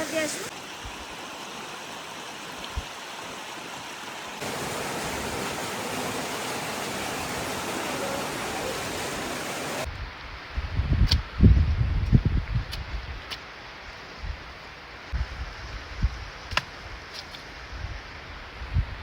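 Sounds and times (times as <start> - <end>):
waterfall rushing water: 0.0 - 9.9.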